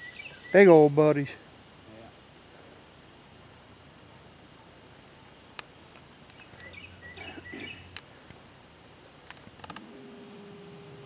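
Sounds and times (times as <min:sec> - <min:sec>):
insects droning: 0:00.0 - 0:11.0
short insect chirps: 0:00.0 - 0:11.0
sharp clicks: 0:09.2 - 0:09.9.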